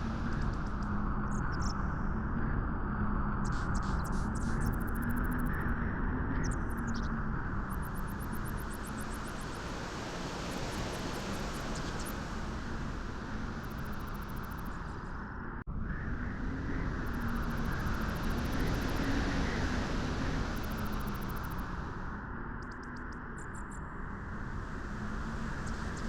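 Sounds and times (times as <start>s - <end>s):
rushing wind: 7.4s - 22.4s, 23.8s - 26.0s.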